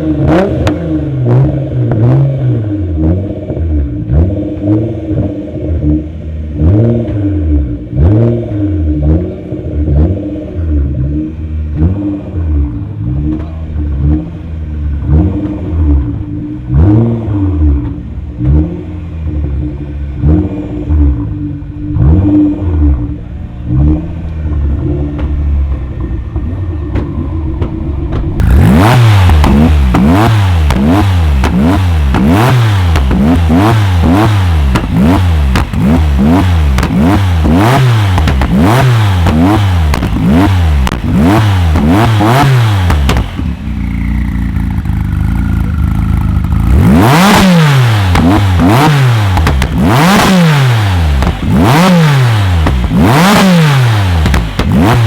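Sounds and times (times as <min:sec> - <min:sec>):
car engine revving: 0:00.0 - 0:55.0
falling whine: 0:22.6 - 0:30.9.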